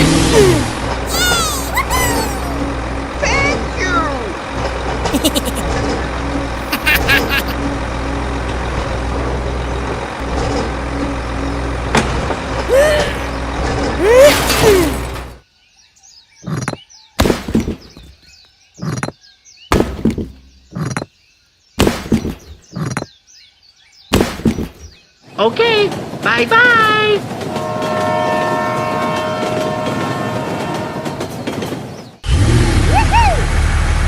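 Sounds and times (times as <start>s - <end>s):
engine-like rumble: 0.0s - 15.4s, 32.2s - 34.0s.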